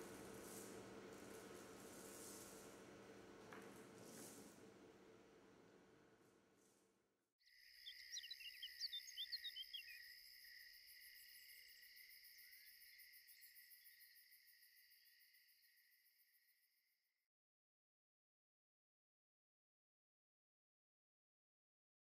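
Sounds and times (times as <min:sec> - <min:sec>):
crickets trilling: 0:07.4 - 0:16.5.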